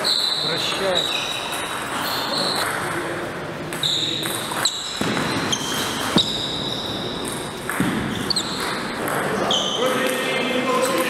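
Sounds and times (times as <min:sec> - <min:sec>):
short high squeaks: 0:00.0 - 0:02.7, 0:03.8 - 0:07.2, 0:08.1 - 0:08.6
ping pong ball clicks: 0:08.6 - 0:09.4.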